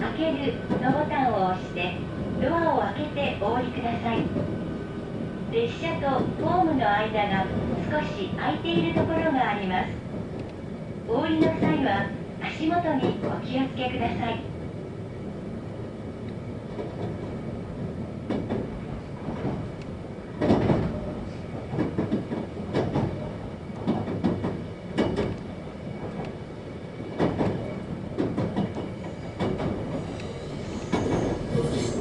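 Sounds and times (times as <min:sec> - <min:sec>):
train rumbling on rails: 0:00.0 - 0:32.0
wheels clacking over rail joints: 0:21.6 - 0:26.4, 0:27.2 - 0:30.1.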